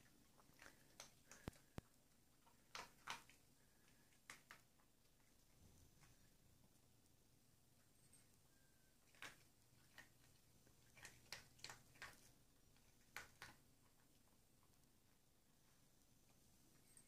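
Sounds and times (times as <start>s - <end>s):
dog crunching dry food: 0.0s - 4.9s, 9.0s - 14.7s.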